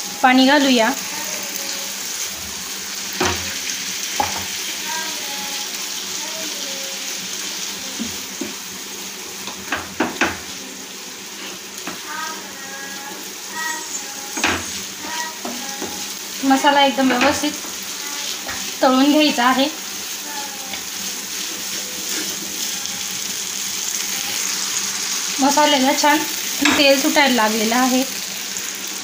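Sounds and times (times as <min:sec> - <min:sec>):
spices sizzling in oil: 0:00.0 - 0:29.0
wooden spatula scraping a pan: 0:18.4 - 0:23.0.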